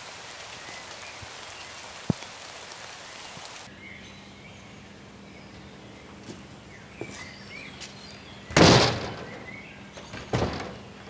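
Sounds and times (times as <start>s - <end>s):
rain patter: 0.0s - 3.7s
bird chirps: 3.2s - 8.6s.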